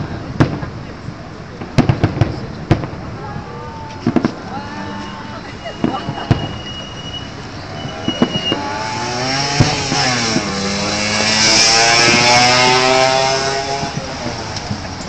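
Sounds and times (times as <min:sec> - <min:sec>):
firework bangs: 0:00.0 - 0:15.0
motorcycle riding past: 0:08.5 - 0:14.0.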